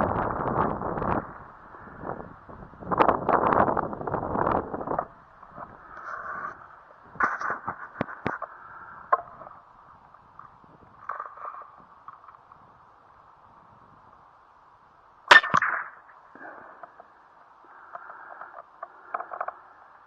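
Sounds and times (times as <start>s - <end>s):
wind buffeting microphone: 0.0s - 11.1s
faint rustles: 0.0s - 14.3s.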